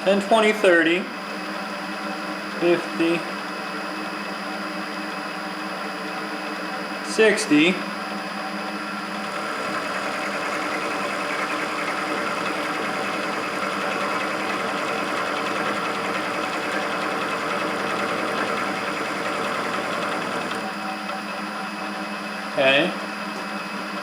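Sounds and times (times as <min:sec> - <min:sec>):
milling machine cutting steel: 0:09.2 - 0:20.8.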